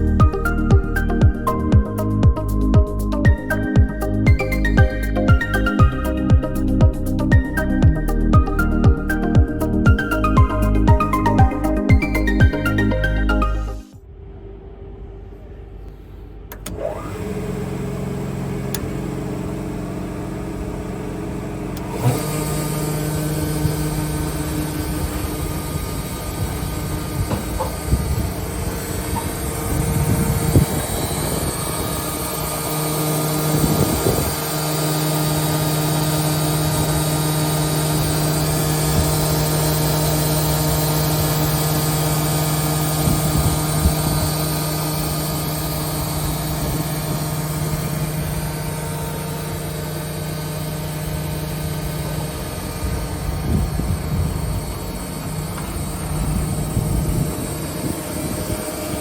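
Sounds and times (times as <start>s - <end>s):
panel saw motor hum: 16.5s - 59.0s.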